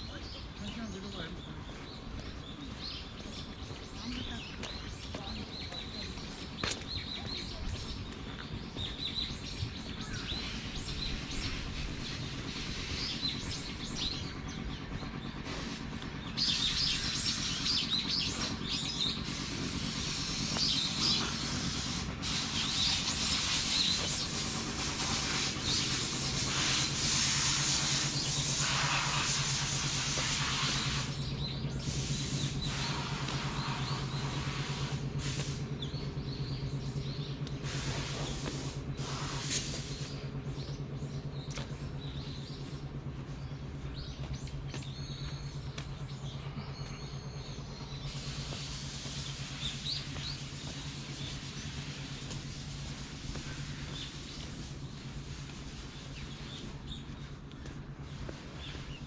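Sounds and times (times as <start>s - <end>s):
small birds chirping: 0.0s - 59.0s
outdoor background hiss: 15.4s - 36.0s, 47.7s - 57.0s.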